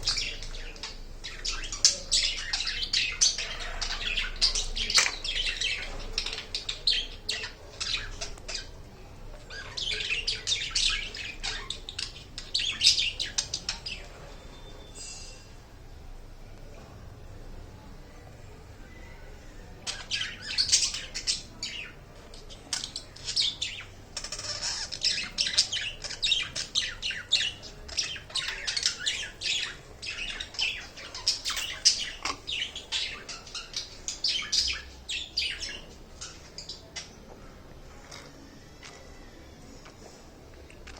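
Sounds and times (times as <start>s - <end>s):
budgerigars chattering: 0.0s - 8.8s, 9.5s - 14.1s, 19.8s - 22.0s, 22.6s - 37.2s.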